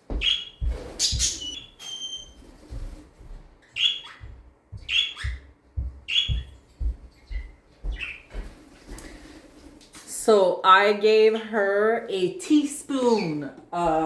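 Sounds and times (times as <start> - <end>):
parrot whistling: 0.2 - 2.4.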